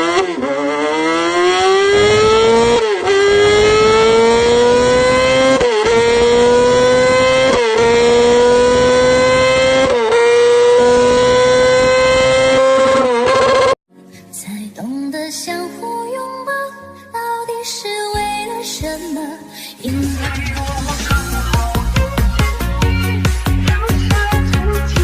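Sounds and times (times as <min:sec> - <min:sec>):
motorcycle engine accelerating: 0:00.0 - 0:13.8.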